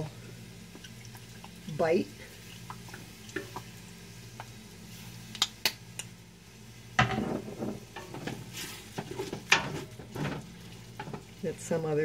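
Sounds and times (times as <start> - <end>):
metal utensil scraping frying pan: 7.0 - 11.2.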